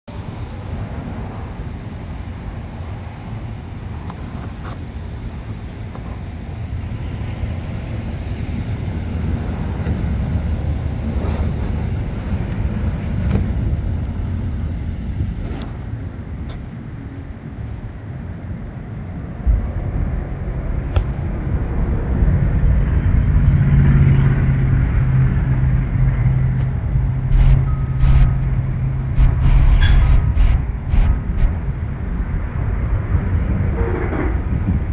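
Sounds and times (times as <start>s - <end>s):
diesel engine rumbling: 19.6s - 34.9s.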